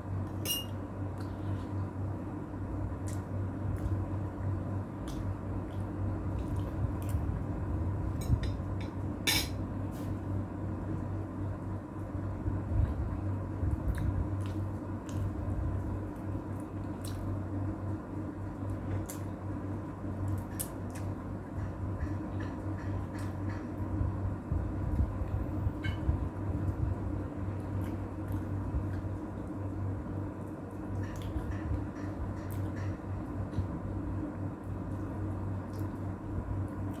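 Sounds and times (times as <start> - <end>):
steady low hum: 0.0 - 37.0
wet chewing of food: 2.9 - 7.5, 13.7 - 17.4.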